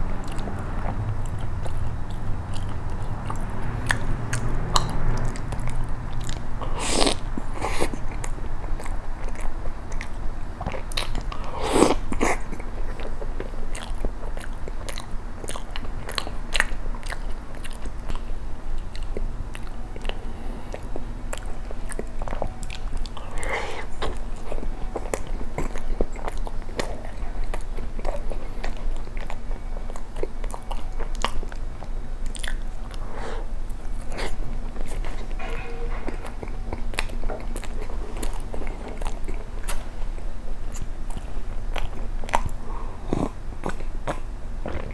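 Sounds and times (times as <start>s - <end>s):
person chewing bread: 0.0s - 44.9s
wet mouth clicks and smacks: 0.1s - 12.6s.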